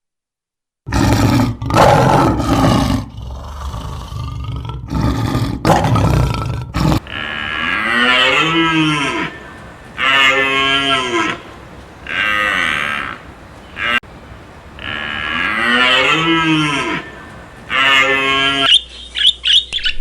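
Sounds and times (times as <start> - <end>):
animal roaring calls: 0.9 - 18.7
cow mooing: 6.8 - 18.7.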